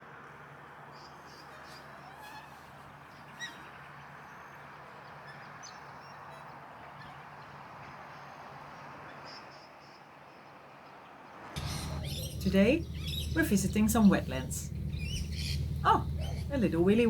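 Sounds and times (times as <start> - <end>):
wetland birds chirping: 0.6 - 10.5, 11.6 - 17.0
low hum: 11.6 - 17.0
steady background hiss: 11.6 - 17.0.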